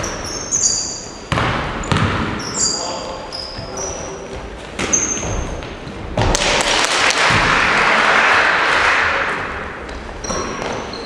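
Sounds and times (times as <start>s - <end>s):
sneaker squeak: 0.0s - 5.9s, 10.1s - 11.0s
basketball thud: 1.3s - 2.4s.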